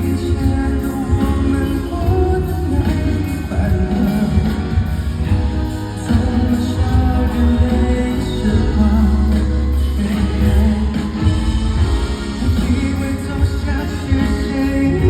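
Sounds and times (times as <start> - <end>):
live pop band with heavy bass: 0.0 - 15.0
person singing: 0.0 - 15.0.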